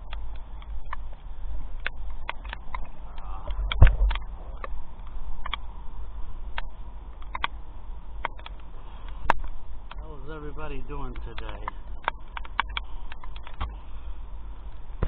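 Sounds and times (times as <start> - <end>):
wind rumbling on microphone: 0.0 - 15.0
heavy thump: 3.6 - 4.2.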